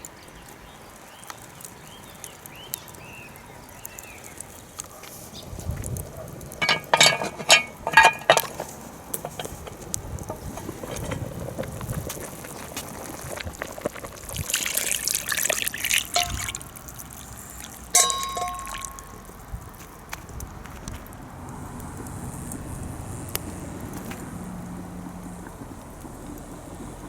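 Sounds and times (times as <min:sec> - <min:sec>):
ringing metallic clank: 0:06.6 - 0:09.8, 0:16.2 - 0:16.5, 0:18.0 - 0:19.2
metal clinks: 0:06.6 - 0:11.1, 0:16.2 - 0:16.5, 0:17.9 - 0:19.3
liquid pouring and splashing: 0:13.2 - 0:19.3.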